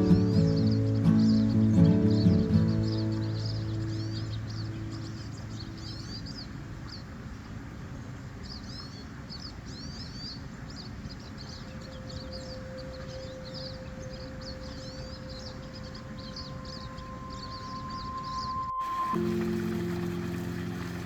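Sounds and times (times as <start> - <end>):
small birds chirping: 0.0 - 21.0
water rushing: 10.4 - 21.0
faint held tone: 11.7 - 21.0.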